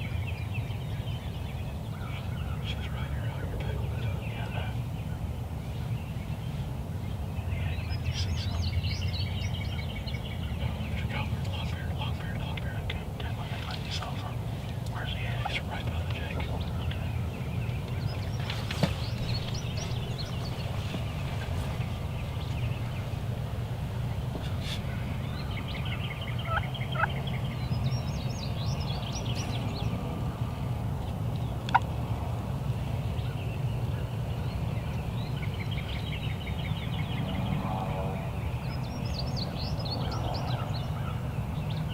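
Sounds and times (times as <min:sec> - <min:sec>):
bird chirping: 0:00.0 - 0:32.0, 0:32.8 - 0:41.9
wind rumble: 0:00.0 - 0:41.9
turkey gobbling: 0:25.8 - 0:27.2.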